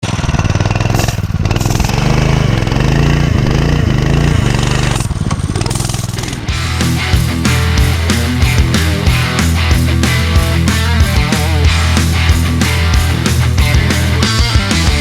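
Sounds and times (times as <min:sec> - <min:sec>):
mini bike engine revving: 0:00.0 - 0:06.6.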